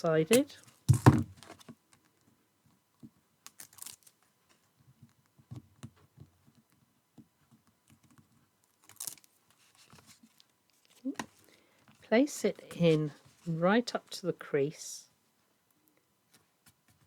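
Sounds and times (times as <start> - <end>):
tape and card clicks and rustles: 3.4 - 4.2, 8.7 - 11.5.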